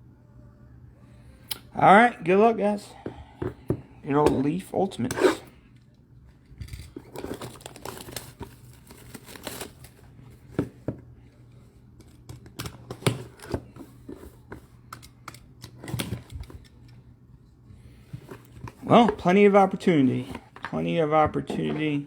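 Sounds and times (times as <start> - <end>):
plastic wrapping crinkling and tearing: 7.1 - 10.0.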